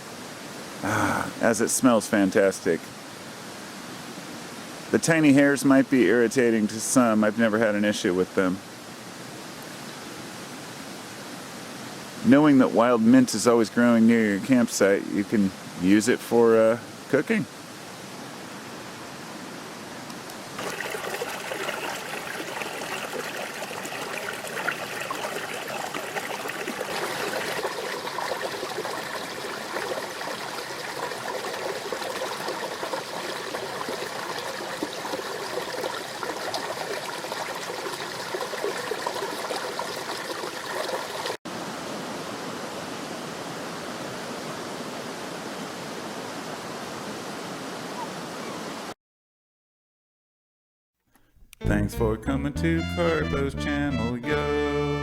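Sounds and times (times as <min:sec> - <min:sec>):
stream flowing water: 0:16.9 - 0:43.4.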